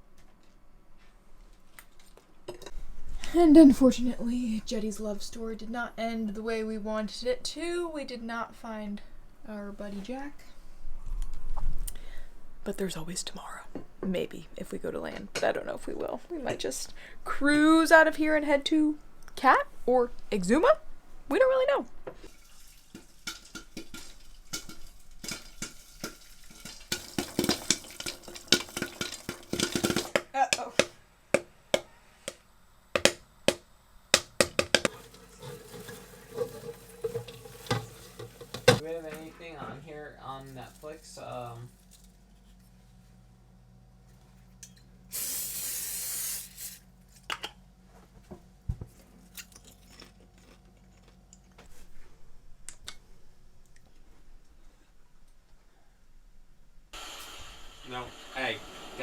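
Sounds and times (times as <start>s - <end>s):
cutlery and dishes clinking: 34.8s - 38.8s
faint low hum: 34.9s - 45.1s
spray hiss: 45.1s - 46.8s, 57.0s - 59.0s.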